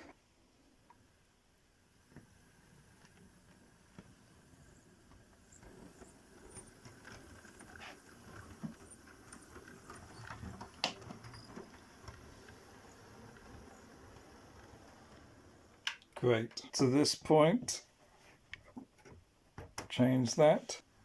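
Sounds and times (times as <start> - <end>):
wheels clicking over rail joints: 2.2 - 17.1
model train motor rumble: 4.4 - 17.0.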